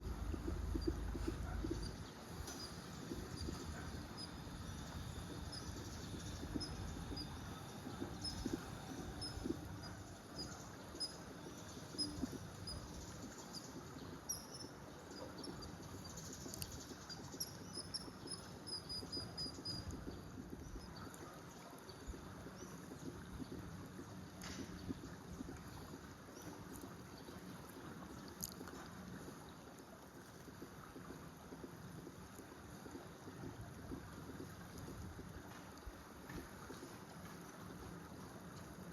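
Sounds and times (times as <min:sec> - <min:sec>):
low background rumble: 0:00.0 - 0:14.5.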